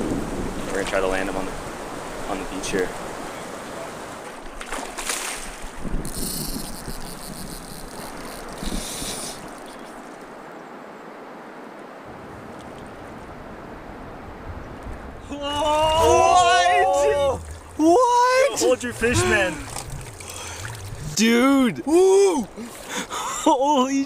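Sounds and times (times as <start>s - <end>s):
wind buffeting microphone: 0.0s - 10.4s, 12.1s - 23.0s
water lapping at shore: 0.0s - 10.7s, 11.6s - 24.0s
splashes: 0.6s - 10.4s, 15.3s - 23.5s.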